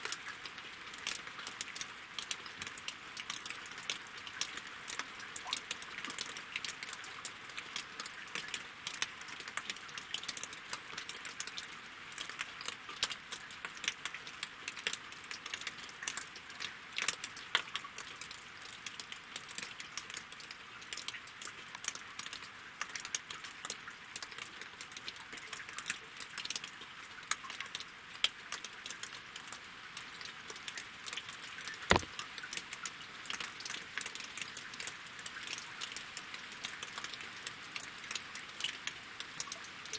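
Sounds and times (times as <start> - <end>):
rain on water and logs: 0.0 - 39.9
drops ticking: 31.9 - 32.1.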